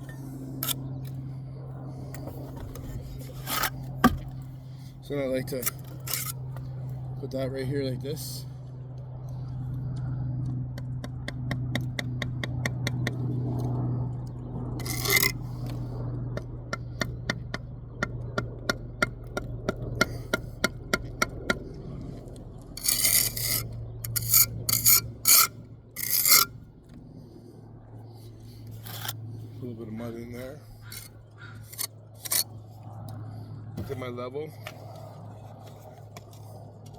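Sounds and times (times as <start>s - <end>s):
steady low hum: 0.0s - 36.9s
trowel scraping mortar: 2.2s - 4.4s, 5.5s - 6.4s, 14.8s - 15.9s, 22.8s - 26.6s, 28.6s - 29.2s, 30.8s - 32.6s.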